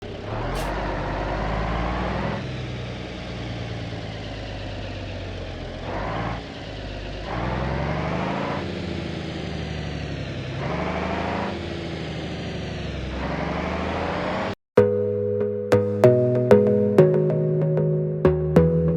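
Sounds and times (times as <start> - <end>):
tractor engine revving: 0.0 - 14.6.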